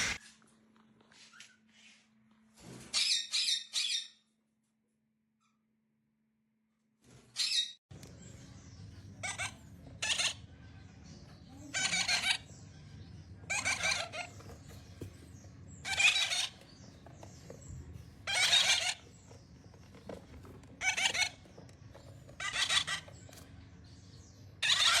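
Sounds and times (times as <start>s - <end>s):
parrot squawking: 0.0s - 0.2s, 9.2s - 10.6s, 11.7s - 12.5s, 13.4s - 14.8s, 15.8s - 17.0s, 18.2s - 19.4s, 20.7s - 23.4s, 24.6s - 25.0s.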